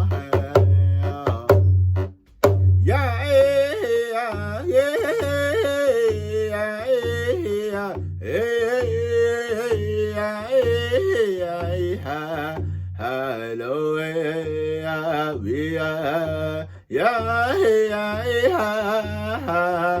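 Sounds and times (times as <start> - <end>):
man singing held vocables: 0.0 - 1.7, 2.8 - 20.0
steady drumbeat: 0.0 - 12.8.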